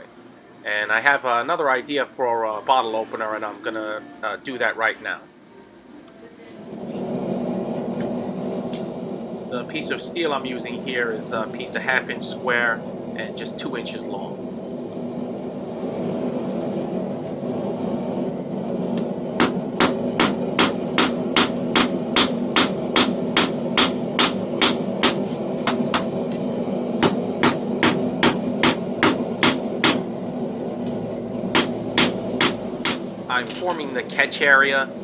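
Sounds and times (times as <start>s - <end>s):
steady hum: 0.0s - 35.0s
hammer striking steel on anvil: 19.4s - 26.4s, 27.0s - 30.1s, 31.5s - 33.1s.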